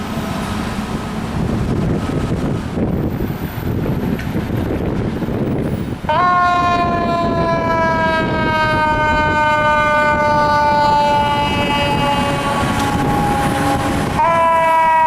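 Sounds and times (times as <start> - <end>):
traffic and engine rumble: 0.0 - 6.2, 8.2 - 14.2
fire truck air horn blast: 6.1 - 15.0.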